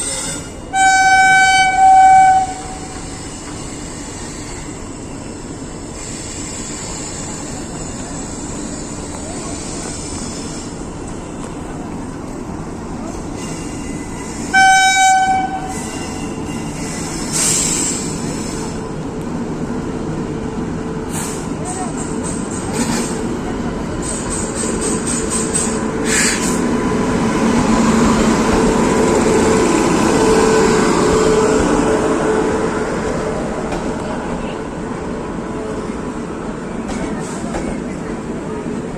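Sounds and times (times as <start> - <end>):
train running: 0.0 - 38.9
train horn blowing: 0.7 - 3.2, 14.5 - 16.4.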